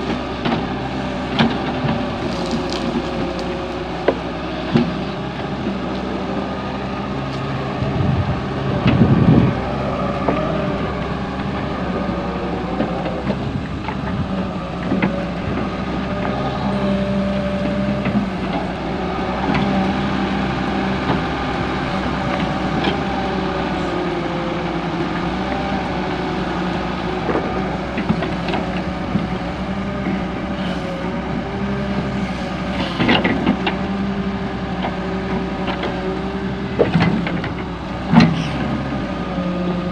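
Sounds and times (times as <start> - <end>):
excavator diesel engine running: 0.0 - 39.9
rough rumble: 0.0 - 39.9
knocks and clanks: 36.7 - 38.8.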